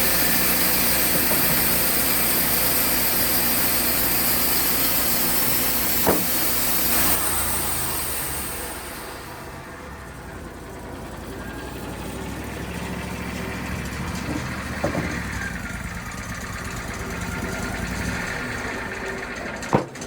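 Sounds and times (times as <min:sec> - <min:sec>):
saw blade cutting log: 0:00.0 - 0:09.4, 0:13.7 - 0:15.7, 0:19.4 - 0:20.0
sawmill engine running: 0:00.0 - 0:20.0
knock: 0:06.0 - 0:06.4, 0:14.2 - 0:15.2, 0:19.7 - 0:20.0.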